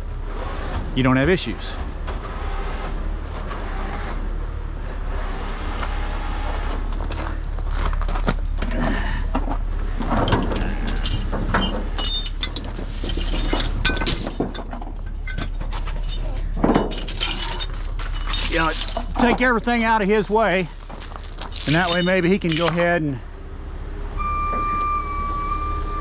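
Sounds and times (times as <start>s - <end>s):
metal chains clinking: 10.0s - 23.2s
heavy truck idling: 22.1s - 26.0s.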